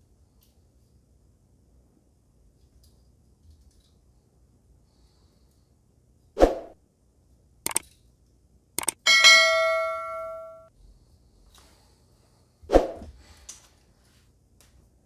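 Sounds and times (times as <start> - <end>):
short clicks: 7.7 - 8.0, 8.8 - 9.0
small metal object ringing: 8.8 - 10.7.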